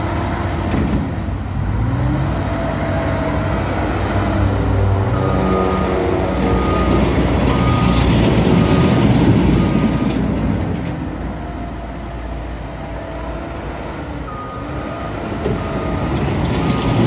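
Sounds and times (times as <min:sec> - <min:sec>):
diesel engine running: 0:00.0 - 0:17.0
reversing alarm beeping: 0:05.0 - 0:10.2, 0:14.2 - 0:17.0.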